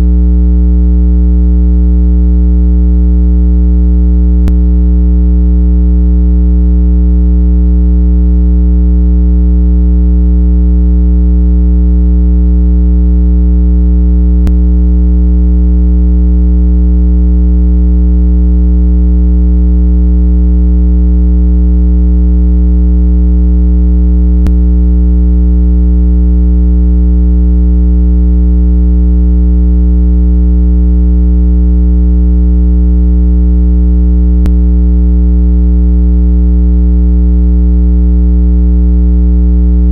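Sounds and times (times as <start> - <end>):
low buzzy electronic tone: 4.4 - 4.7, 14.3 - 14.8, 24.4 - 24.7, 34.4 - 34.6.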